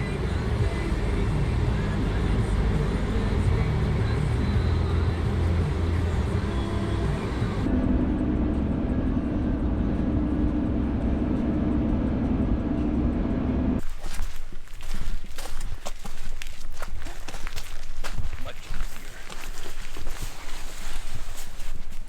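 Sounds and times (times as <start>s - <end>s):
low drone: 0.0s - 14.2s
vehicle engine and road noise: 0.0s - 22.0s.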